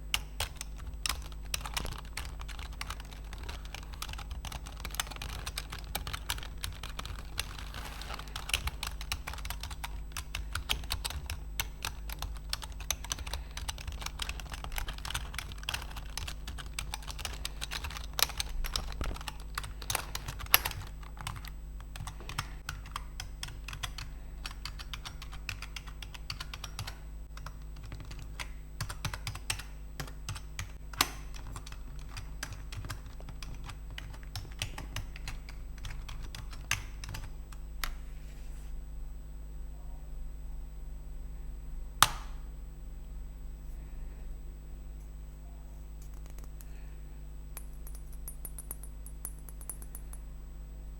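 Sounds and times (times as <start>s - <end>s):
keyboard keys clicking: 0.1s - 37.3s, 47.6s - 50.2s.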